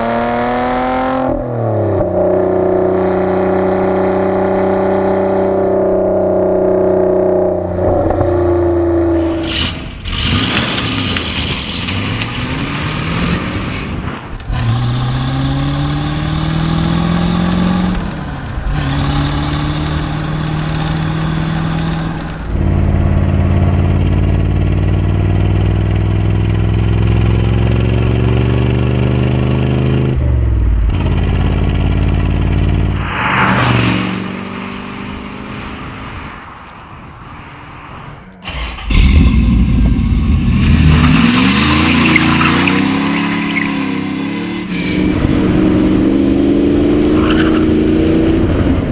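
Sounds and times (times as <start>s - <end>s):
car engines revving: 0.0s - 48.9s.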